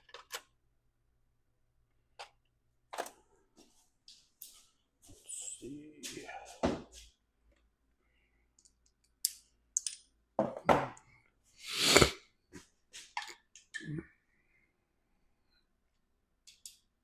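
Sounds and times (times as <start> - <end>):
short hissing rustle: 11.6 - 12.2.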